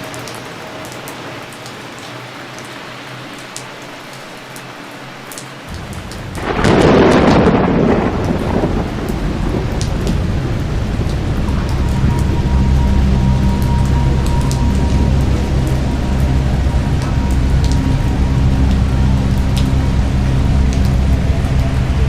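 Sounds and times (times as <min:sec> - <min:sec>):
heavy rain falling: 0:00.0 - 0:22.0
thunder rumbling and crashing: 0:05.8 - 0:22.0.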